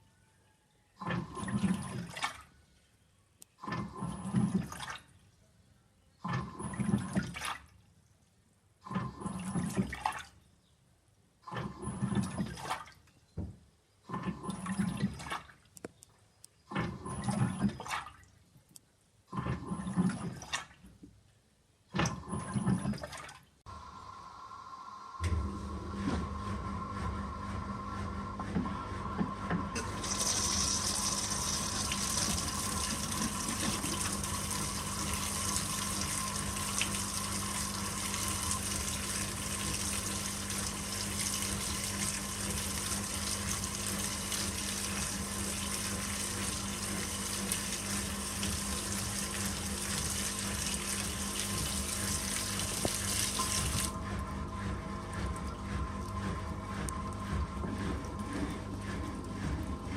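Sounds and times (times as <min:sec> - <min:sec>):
water rushing into washing machine: 0:01.0 - 0:02.5, 0:03.6 - 0:05.2, 0:06.2 - 0:07.8, 0:08.8 - 0:10.4, 0:11.5 - 0:13.1, 0:14.1 - 0:15.7, 0:16.7 - 0:18.4, 0:19.3 - 0:20.9, 0:21.9 - 0:24.1, 0:24.9 - 0:59.9
washing machine low hum: 0:01.0 - 0:02.6, 0:03.6 - 0:05.2, 0:06.2 - 0:07.7, 0:08.8 - 0:10.4, 0:11.5 - 0:15.7, 0:16.7 - 0:18.3, 0:19.3 - 0:21.1, 0:21.9 - 0:59.9.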